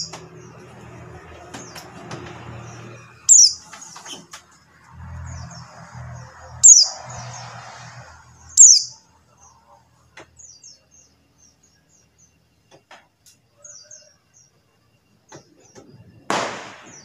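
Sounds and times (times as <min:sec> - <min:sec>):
bird chirping: 0:00.0 - 0:04.4, 0:05.0 - 0:13.0.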